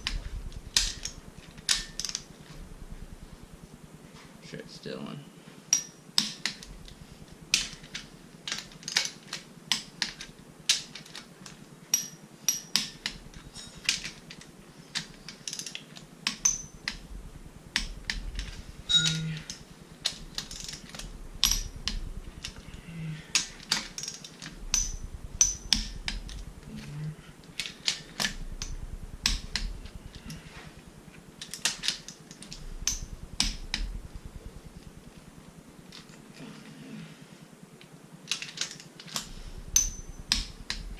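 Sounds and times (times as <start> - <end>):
ratcheting wrench clicking: 0.0 - 2.3, 17.7 - 26.8, 31.4 - 34.9, 38.3 - 40.9.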